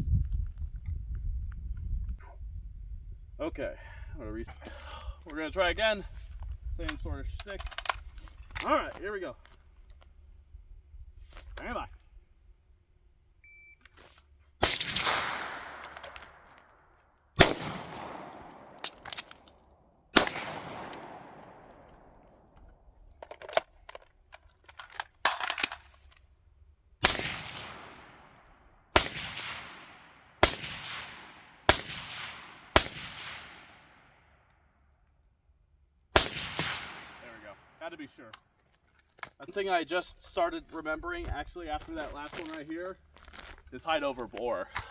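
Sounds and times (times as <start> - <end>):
gunshots echoing: 14.6 - 16.6, 17.4 - 19.4, 20.1 - 22.4, 27.0 - 34.1, 36.2 - 37.8.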